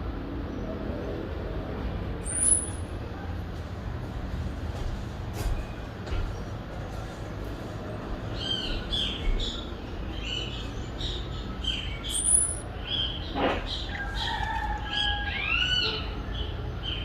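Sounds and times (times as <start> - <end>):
distant city traffic rumble: 0.0 - 17.0
bird calling in falling chirps: 2.2 - 2.8.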